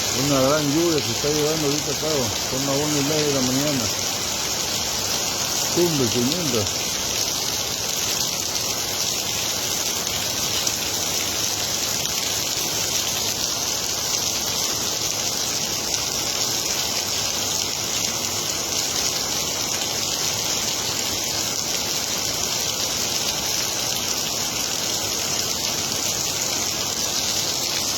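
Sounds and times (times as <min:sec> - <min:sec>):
heavy rain: 0:00.0 - 0:27.9
running water: 0:00.0 - 0:27.9.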